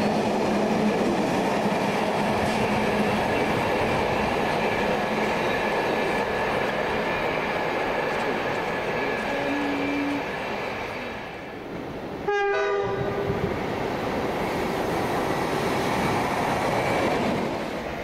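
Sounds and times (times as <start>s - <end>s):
train wheels and track noise: 0.0s - 18.0s
train horn blast: 9.2s - 10.3s, 12.2s - 13.4s.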